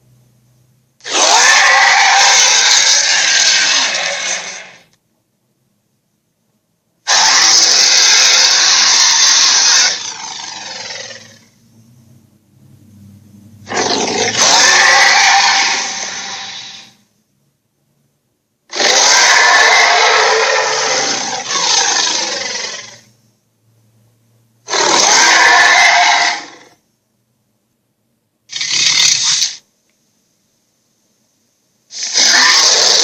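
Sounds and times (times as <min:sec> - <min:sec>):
monster roars: 0:01.0 - 0:04.9, 0:07.1 - 0:11.5, 0:13.6 - 0:17.0, 0:18.7 - 0:23.1, 0:24.7 - 0:26.8, 0:31.9 - 0:33.0.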